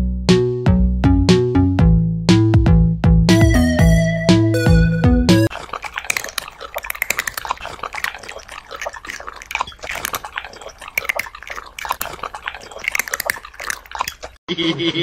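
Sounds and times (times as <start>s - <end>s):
chewing and crunching: 5.4s - 14.4s.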